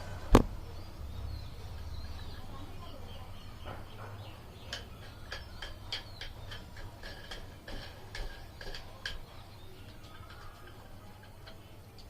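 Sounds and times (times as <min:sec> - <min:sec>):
dumbbell parts clicking and clinking: 0:03.6 - 0:12.0.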